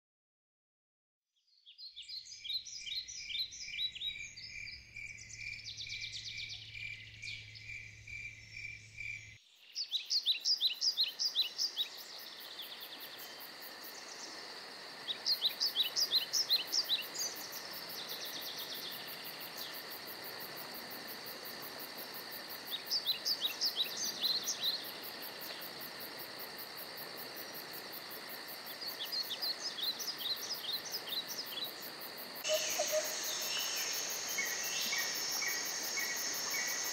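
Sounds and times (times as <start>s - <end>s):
birds singing: 1.5s - 14.4s, 15.0s - 19.8s, 28.8s - 36.9s
insects chorus: 1.9s - 36.9s
rapid pulsing high call: 32.4s - 35.2s.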